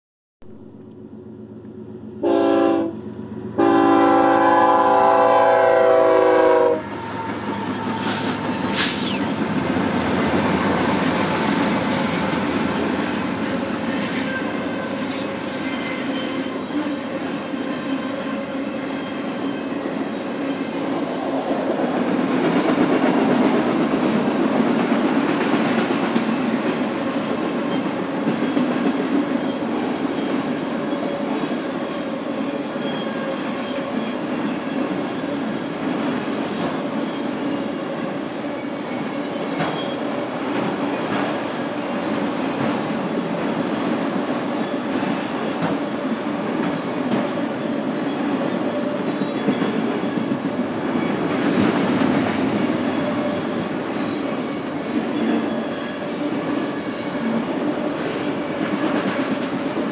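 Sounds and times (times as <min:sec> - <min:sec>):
locomotive horn blasts: 0:02.2 - 0:03.0, 0:03.6 - 0:06.9
train wheels rumbling on rails: 0:02.9 - 0:59.9.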